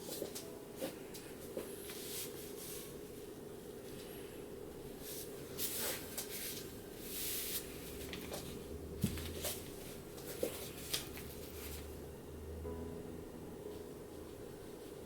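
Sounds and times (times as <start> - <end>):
faint hum: 0.0 - 15.0
brush swishing across paper: 1.8 - 3.0, 5.0 - 8.0.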